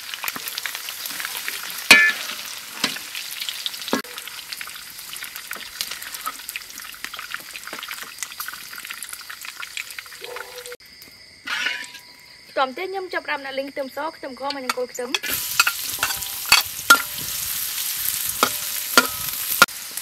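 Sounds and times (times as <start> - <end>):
pork sizzling in hot oil: 0.0 - 10.8, 15.1 - 20.0
metal skimmer clanking on wok: 1.9 - 3.0, 14.6 - 17.4, 18.4 - 19.7.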